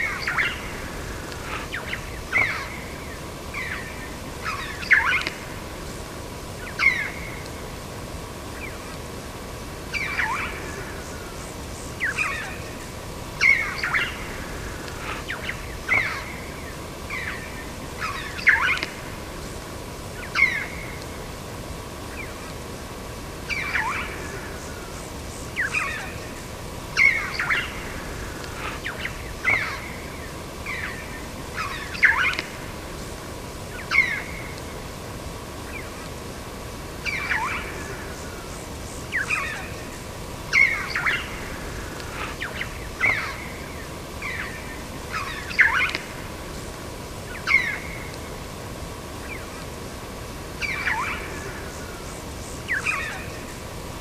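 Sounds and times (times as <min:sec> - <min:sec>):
birds calling downward sweeps: 0:23.4 - 0:34.9, 0:35.5 - 0:53.8.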